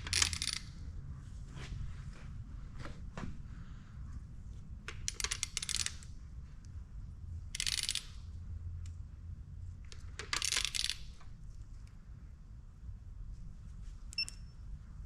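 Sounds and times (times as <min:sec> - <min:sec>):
ratchet wrench clicking: 0:00.0 - 0:00.7, 0:05.0 - 0:06.1, 0:07.5 - 0:08.3, 0:09.9 - 0:11.2
low background hum: 0:00.0 - 0:15.0.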